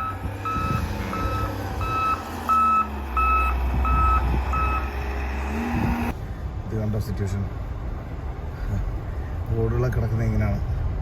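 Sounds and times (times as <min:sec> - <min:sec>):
vehicle reversing alarm beeping: 0:00.0 - 0:05.0.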